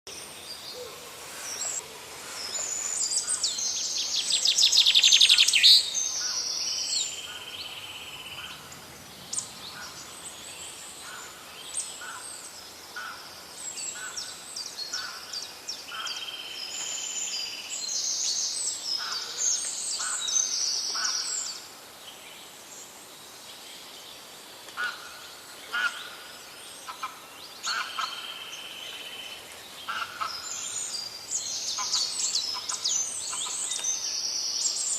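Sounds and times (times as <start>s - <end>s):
birds singing in chorus: 0.1s - 34.9s.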